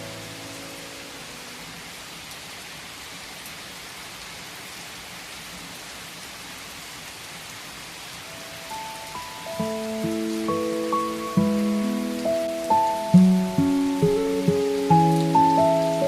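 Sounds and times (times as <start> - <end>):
soft piano notes: 0.0 - 1.9, 8.4 - 16.0
steady rain falling: 0.0 - 16.0.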